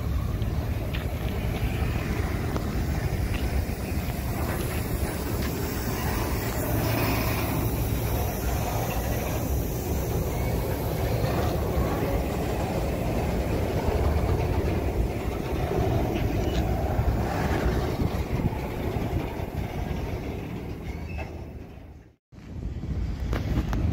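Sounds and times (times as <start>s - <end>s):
freight train wheels rumbling: 0.0s - 23.9s.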